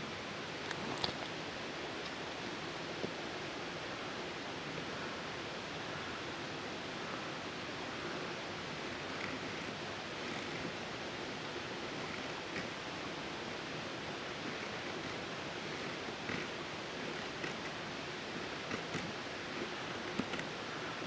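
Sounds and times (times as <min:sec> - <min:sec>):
steady outdoor hiss: 0:00.0 - 0:21.0
faint ticks: 0:08.8 - 0:10.9, 0:11.8 - 0:12.8, 0:13.6 - 0:20.5.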